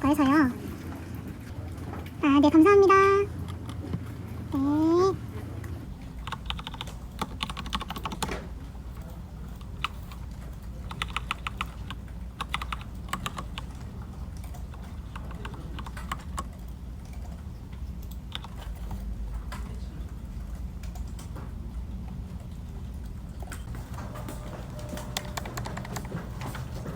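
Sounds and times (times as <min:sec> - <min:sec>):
typing on keyboard: 0:05.9 - 0:26.9.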